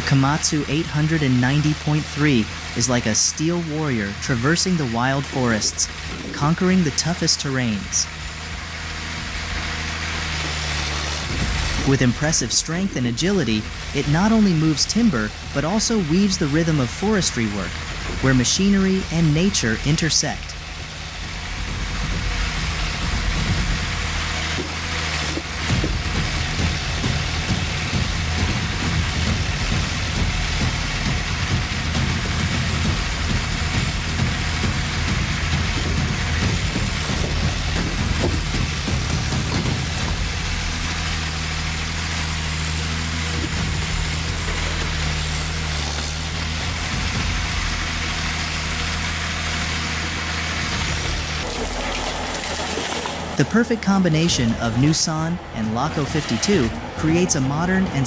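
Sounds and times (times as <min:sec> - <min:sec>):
heavy machine engine running: 0:00.0 - 0:58.0
knocks and clunks: 0:08.1 - 0:11.9, 0:20.4 - 0:40.6.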